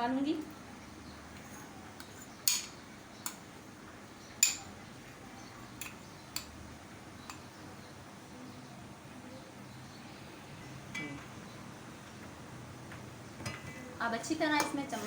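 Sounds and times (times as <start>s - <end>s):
metal kitchen utensils clinking: 1.4s - 3.4s, 4.4s - 4.7s, 13.4s - 15.0s.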